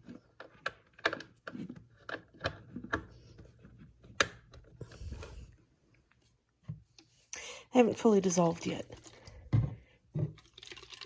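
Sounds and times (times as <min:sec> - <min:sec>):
plastic parts clicking and knocking: 0:00.0 - 0:03.5.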